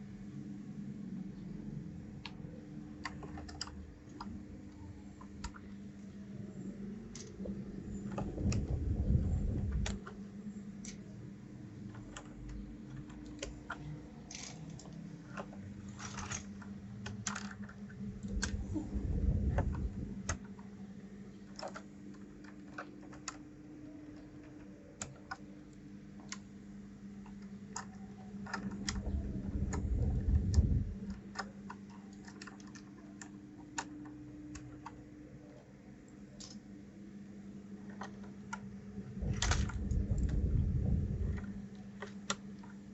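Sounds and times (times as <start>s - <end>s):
faint steady hum: 0.0s - 42.9s
keyboard keycaps clicking: 3.0s - 4.4s
low rumbling handling noise: 6.5s - 11.2s, 18.0s - 20.5s, 28.6s - 31.4s, 39.0s - 42.2s.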